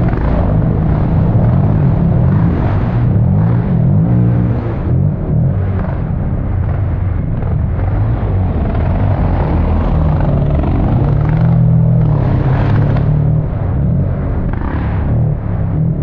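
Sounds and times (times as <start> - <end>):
dirt bike engine revving: 0.0 - 15.7.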